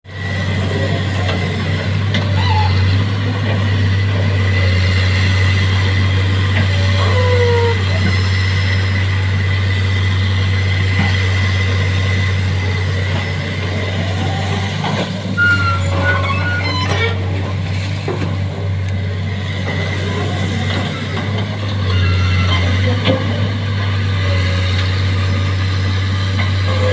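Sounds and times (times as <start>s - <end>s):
excavator engine running: 0.1s - 26.9s
short squeaks and knocks: 2.2s - 3.2s, 15.0s - 17.4s, 21.8s - 23.2s.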